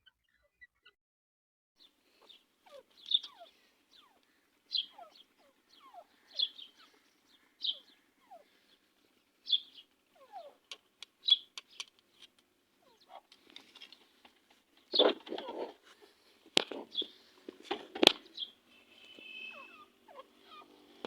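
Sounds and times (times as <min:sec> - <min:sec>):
birds chirping: 0:00.0 - 0:01.0, 0:01.8 - 0:21.0
sharp clicks: 0:10.7 - 0:12.4.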